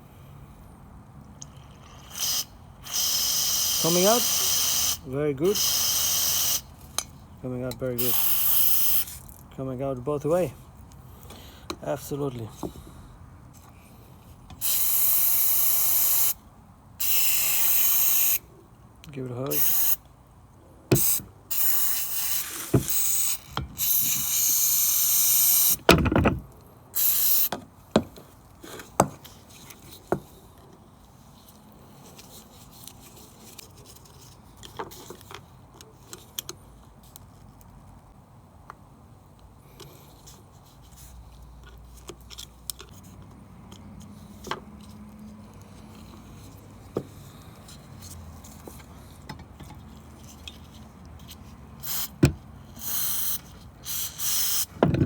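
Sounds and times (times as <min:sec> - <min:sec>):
aerosol spray hissing: 0:02.1 - 0:06.7, 0:08.0 - 0:09.2, 0:14.6 - 0:16.4, 0:17.0 - 0:18.4, 0:19.5 - 0:20.0, 0:21.0 - 0:25.8, 0:27.0 - 0:27.5, 0:51.8 - 0:52.2, 0:52.8 - 0:54.8
thump: 0:54.8 - 0:55.0.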